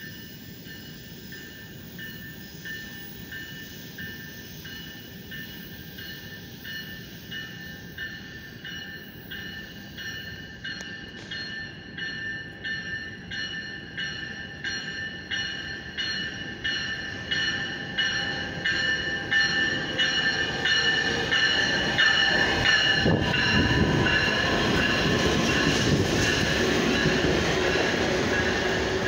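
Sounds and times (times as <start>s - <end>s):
train bell ringing: 0.0s - 29.0s
train rail rumble: 0.0s - 29.0s.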